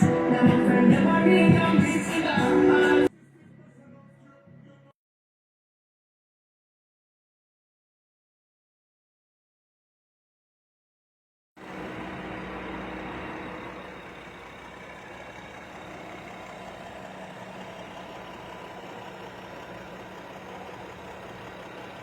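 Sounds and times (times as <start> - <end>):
car engine idling: 0.0 - 3.1, 11.6 - 22.0.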